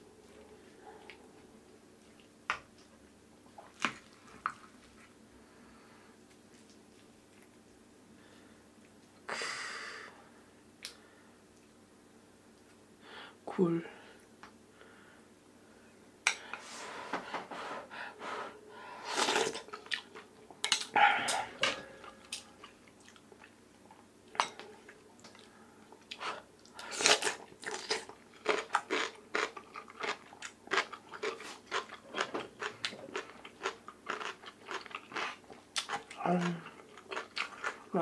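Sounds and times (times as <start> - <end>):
crunching on kimchi: 25.2 - 38.0.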